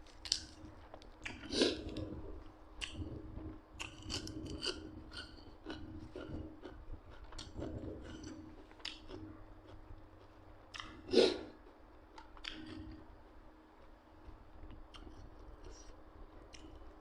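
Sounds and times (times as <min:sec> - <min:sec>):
person chewing food: 0:00.1 - 0:03.2, 0:03.8 - 0:13.0.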